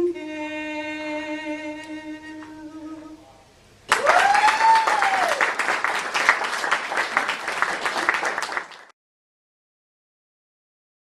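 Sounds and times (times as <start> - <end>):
person whooping: 3.9 - 5.6
audience applauding: 3.9 - 9.0.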